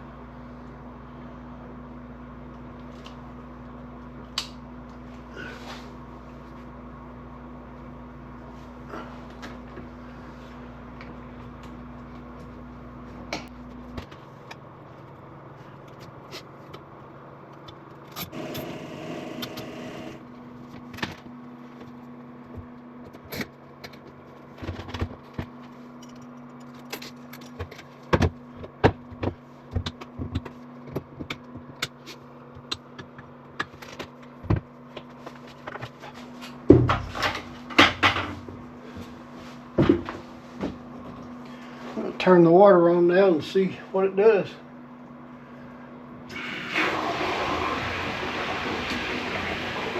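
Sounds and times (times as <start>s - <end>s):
low electrical hum: 0.0s - 49.9s.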